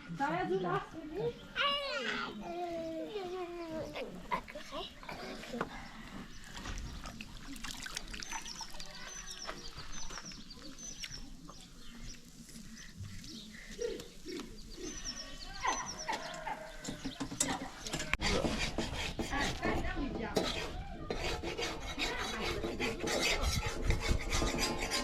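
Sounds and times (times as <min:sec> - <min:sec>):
small birds chirping: 0:00.2 - 0:18.2.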